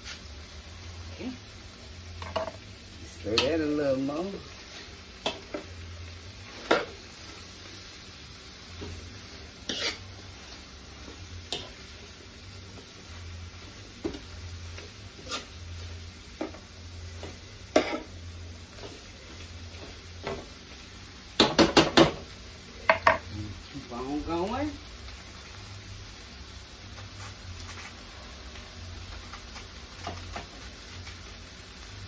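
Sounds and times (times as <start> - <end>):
food sizzling in a pan: 0.0 - 32.0
spoon knocking against pan: 22.9 - 23.2.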